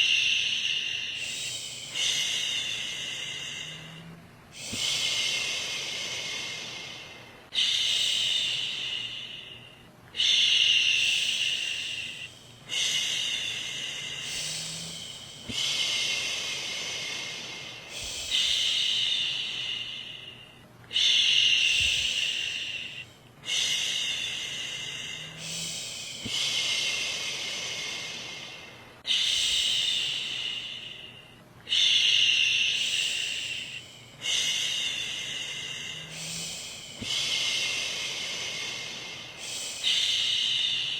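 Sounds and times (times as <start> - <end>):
woman shushing: 14.1 - 15.8, 36.0 - 37.3.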